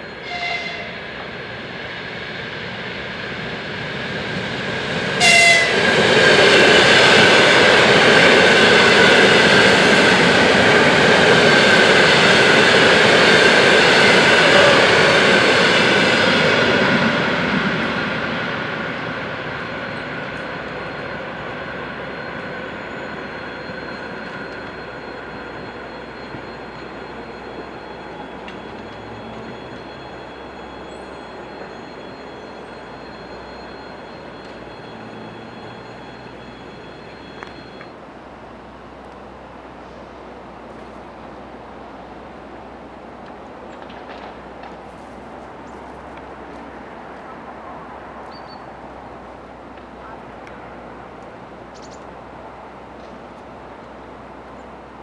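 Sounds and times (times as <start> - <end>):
train horn blasts: 0.0 - 1.1, 5.2 - 6.1, 14.0 - 15.6
train passing by: 0.0 - 55.0.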